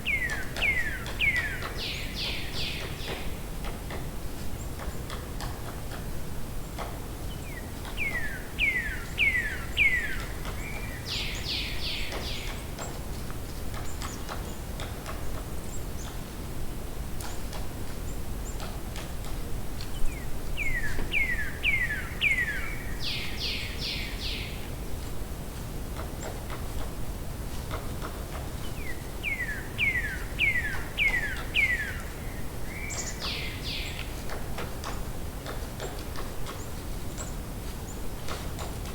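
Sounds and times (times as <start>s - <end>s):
songbird singing: 0.0s - 3.5s, 6.6s - 16.3s, 19.8s - 24.9s, 28.0s - 38.9s.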